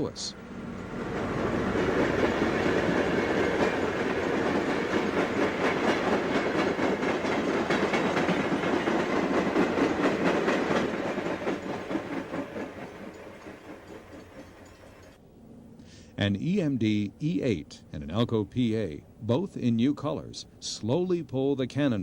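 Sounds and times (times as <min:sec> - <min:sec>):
passenger train passing: 0:00.0 - 0:15.6
wheels clicking over rail joints: 0:00.8 - 0:15.2.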